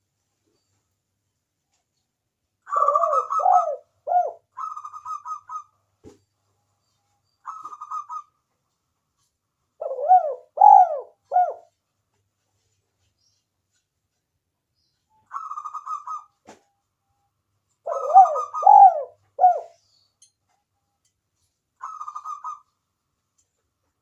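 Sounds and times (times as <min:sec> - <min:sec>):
doves cooing: 0:02.7 - 0:05.7, 0:09.8 - 0:11.7, 0:17.8 - 0:19.8.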